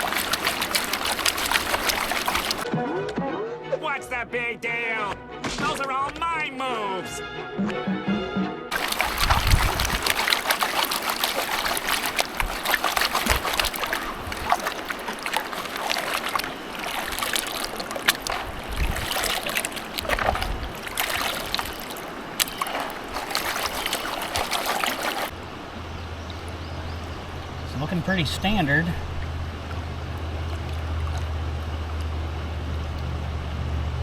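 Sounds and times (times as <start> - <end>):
water sloshing and splashing: 0.0 - 2.7, 8.7 - 33.6.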